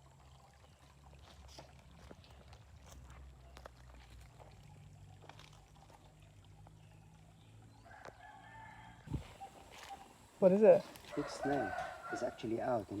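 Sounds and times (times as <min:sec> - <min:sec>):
distant rooster crowing: 0:07.8 - 0:09.4, 0:11.1 - 0:12.6.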